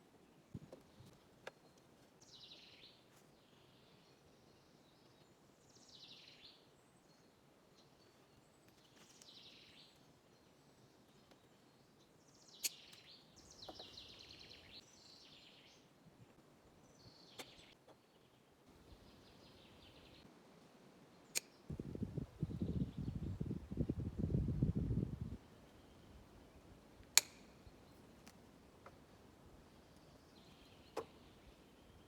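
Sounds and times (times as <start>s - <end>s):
sharp clicks: 27.1s - 28.4s.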